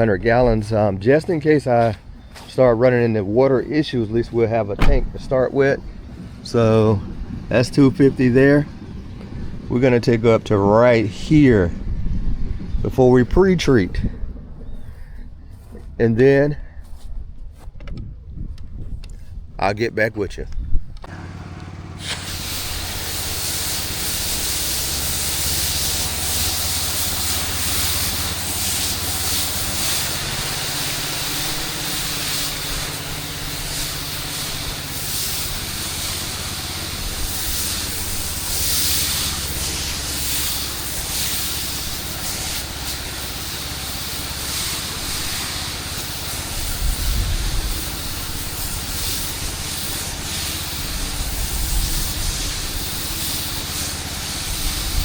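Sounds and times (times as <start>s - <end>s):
engine hum: 0.0s - 13.3s, 20.9s - 55.0s
high-pressure water spray hissing: 21.1s - 55.0s.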